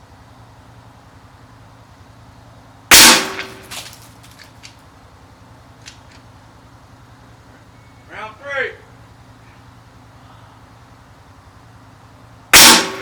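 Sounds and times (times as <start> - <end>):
rifle shot: 2.9 - 3.9, 12.5 - 13.0.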